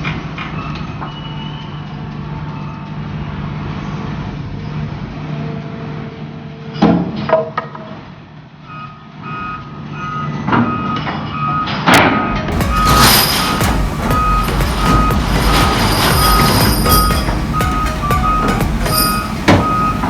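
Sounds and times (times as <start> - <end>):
heavy diesel engine running: 12.5 - 20.0
reversing alarm beeping: 12.5 - 20.0
sharp metal clanks: 12.5 - 20.0.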